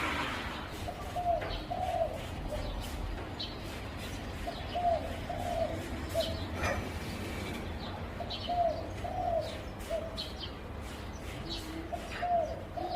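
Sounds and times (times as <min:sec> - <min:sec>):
dove cooing: 0:00.1 - 0:02.9, 0:04.4 - 0:07.6, 0:08.2 - 0:10.3, 0:11.4 - 0:12.9.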